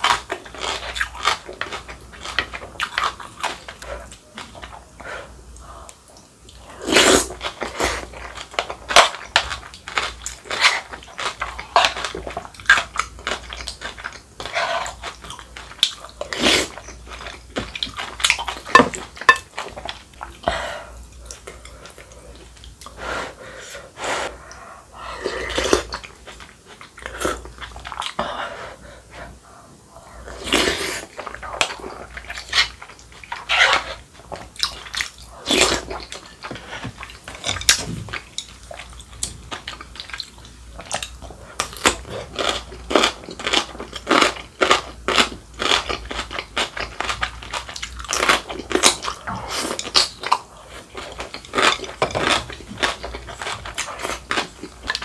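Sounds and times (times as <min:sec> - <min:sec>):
wet chewing and crunching: 0:00.0 - 0:23.0, 0:24.4 - 0:28.2, 0:30.2 - 0:55.0.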